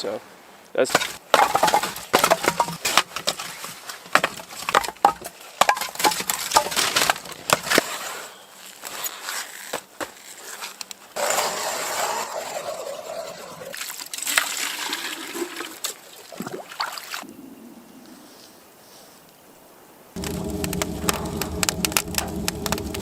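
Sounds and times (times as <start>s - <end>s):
wood splitting knocks and cracks: 0.9s - 7.9s, 20.2s - 23.0s.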